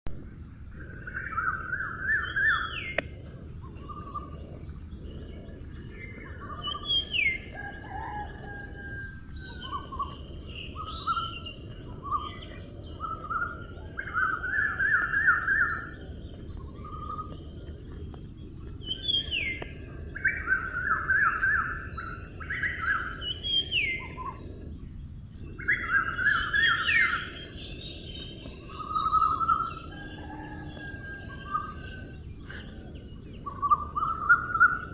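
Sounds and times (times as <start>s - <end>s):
songbird singing: 0.1s - 34.9s
steady background noise: 0.1s - 34.9s.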